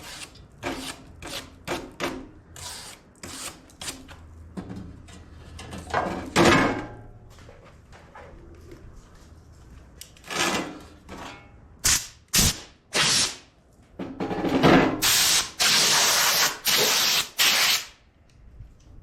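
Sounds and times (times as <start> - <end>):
rough hissing bursts: 15.0 - 18.0.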